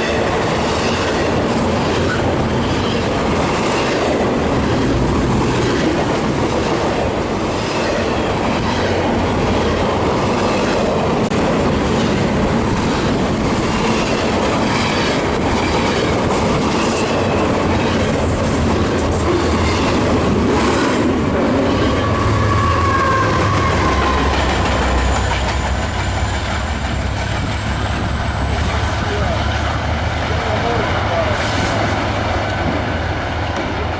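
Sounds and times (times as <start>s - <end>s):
clickety-clack over rails: 0.0s - 33.9s
train wheels rumbling: 0.0s - 33.9s
high wheel squeals: 21.5s - 27.2s.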